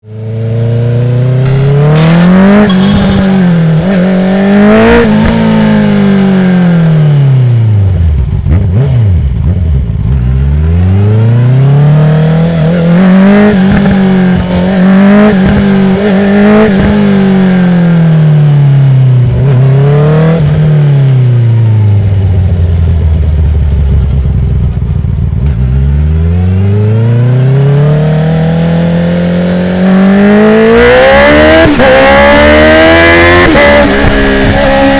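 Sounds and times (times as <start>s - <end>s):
motorcycle engine revving: 0.7s - 34.9s
quickshifter upshifts: 1.4s - 3.6s.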